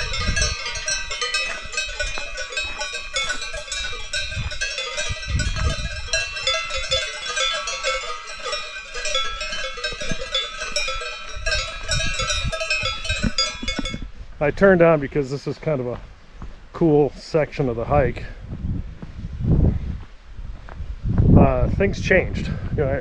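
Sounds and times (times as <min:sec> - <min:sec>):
cowbells clanking: 0:00.0 - 0:14.1.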